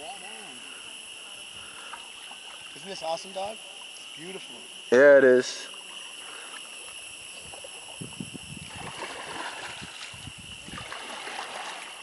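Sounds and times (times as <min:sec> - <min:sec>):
high-pitched insect drone: 0:00.0 - 0:12.0
kayak paddle splashing water: 0:01.4 - 0:04.4, 0:05.7 - 0:12.0.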